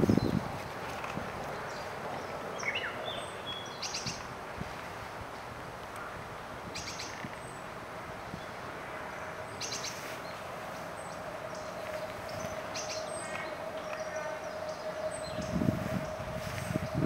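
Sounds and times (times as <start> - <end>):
small birds chirping: 6.7 - 7.7.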